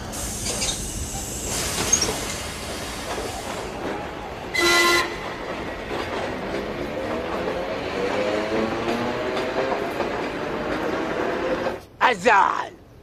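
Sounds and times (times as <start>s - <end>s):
train running: 0.0s - 12.0s
train horn blast: 4.5s - 5.4s.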